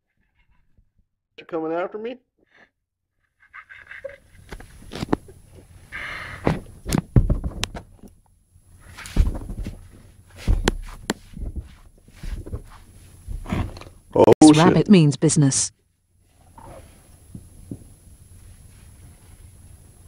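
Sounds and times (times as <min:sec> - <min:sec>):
rabbit scuffling knocks and thumps: 0:06.4 - 0:08.2, 0:08.8 - 0:14.0.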